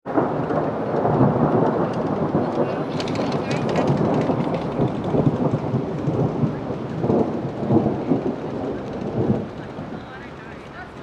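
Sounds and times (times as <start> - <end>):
rain falling: 0.1 - 11.0
thunder rumbling: 0.1 - 11.0.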